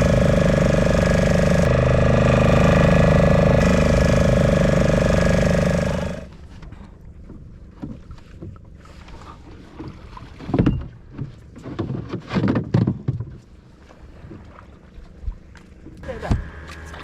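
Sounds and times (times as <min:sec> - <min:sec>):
boat low rumble: 0:00.0 - 0:12.2.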